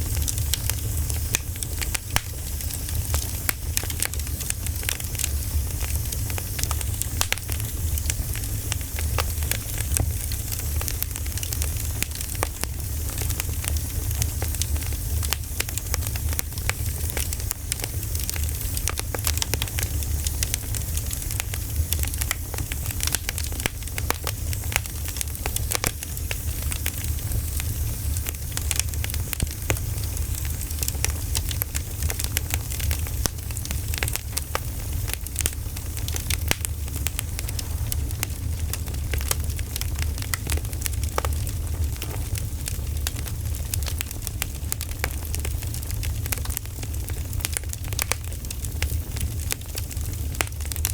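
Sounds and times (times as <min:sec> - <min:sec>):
campfire crackling and popping: 0:00.0 - 0:50.9
steady low rumble: 0:34.4 - 0:43.8.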